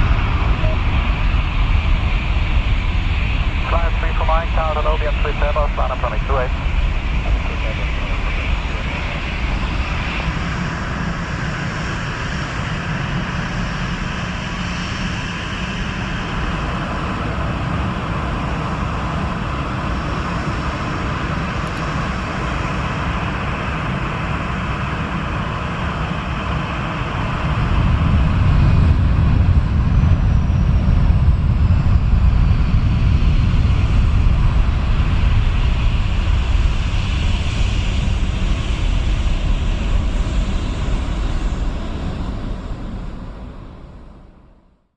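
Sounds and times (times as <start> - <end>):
deep rumble: 0.0 - 12.4
jet engine at takeoff power: 0.0 - 44.8.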